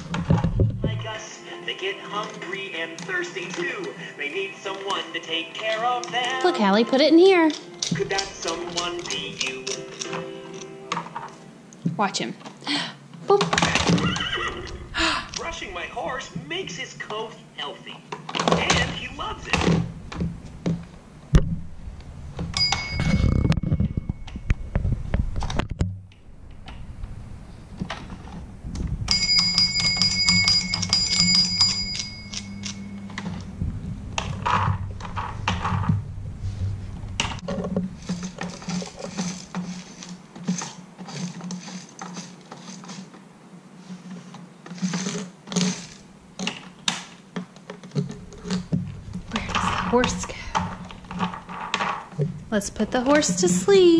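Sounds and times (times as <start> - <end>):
plastic toy figures clicking: 7.5 - 10.7
small bell ringing: 22.6 - 24.3, 29.1 - 33.2.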